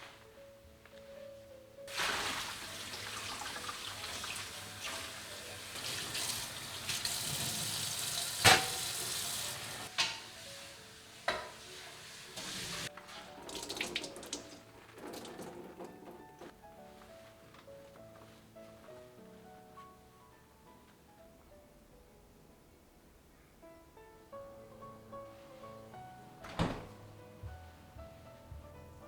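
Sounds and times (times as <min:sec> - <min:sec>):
tap water running into sink: 0:01.9 - 0:10.2, 0:11.3 - 0:16.5.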